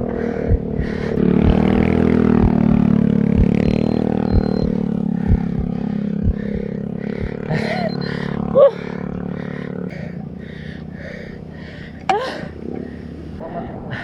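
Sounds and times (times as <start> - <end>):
low thumping: 0.0 - 9.2
vehicle engine running: 0.0 - 13.4.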